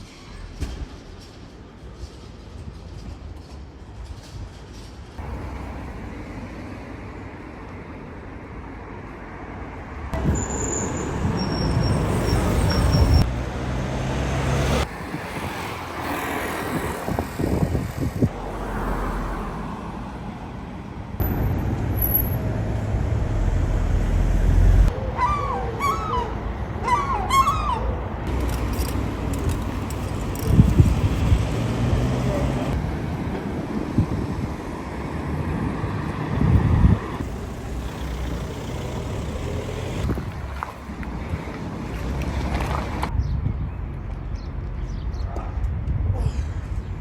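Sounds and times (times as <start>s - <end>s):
low traffic rumble: 0.0s - 47.0s
cars passing: 8.8s - 43.1s.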